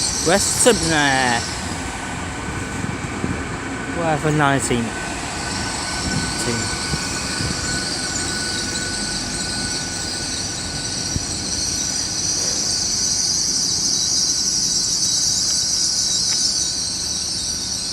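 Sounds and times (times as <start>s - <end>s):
train brakes squealing: 0.0s - 2.8s, 4.0s - 17.9s
train rumble: 0.0s - 17.9s
faint whistle tone: 5.5s - 17.9s.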